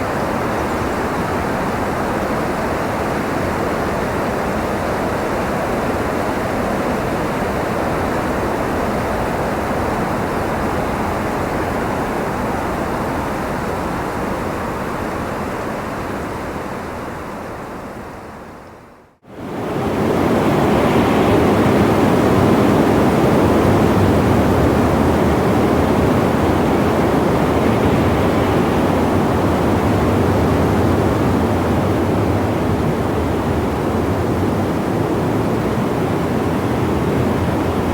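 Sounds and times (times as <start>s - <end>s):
rushing wind: 19.2s - 37.9s.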